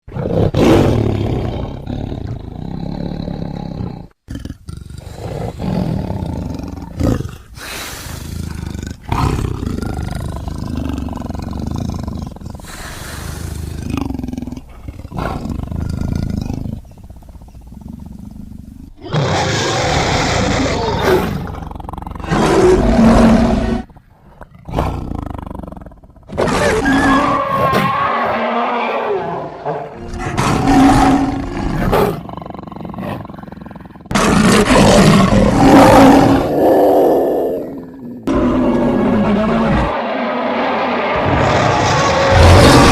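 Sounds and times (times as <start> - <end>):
creature roars and growls: 19.0 - 23.9, 26.3 - 33.4, 34.1 - 42.9.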